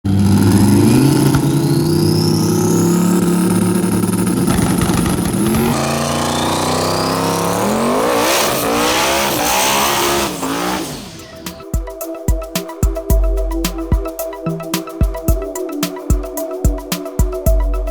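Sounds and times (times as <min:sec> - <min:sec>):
race car engines revving: 0:00.1 - 0:11.6
electronic music with a beat: 0:05.4 - 0:17.9.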